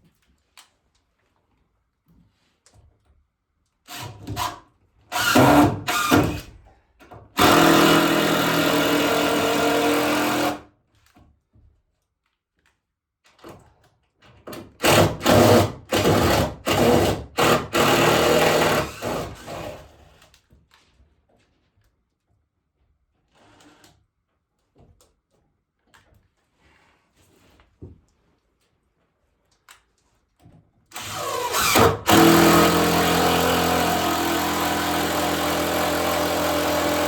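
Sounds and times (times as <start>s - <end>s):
power drill running in bursts: 5.1s - 6.5s, 7.4s - 10.6s, 14.8s - 19.8s, 30.9s - 37.0s.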